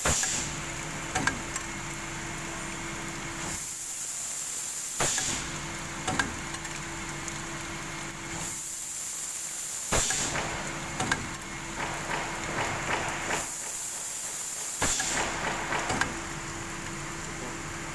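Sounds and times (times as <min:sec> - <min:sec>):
sharp hiss: 0:14.7 - 0:15.4.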